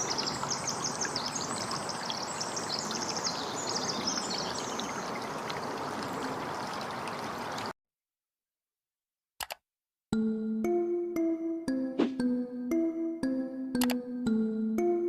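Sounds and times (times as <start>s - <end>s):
running water: 0.0s - 7.7s
small birds chirping: 0.0s - 7.7s
brief click: 9.4s - 9.6s, 13.8s - 14.0s.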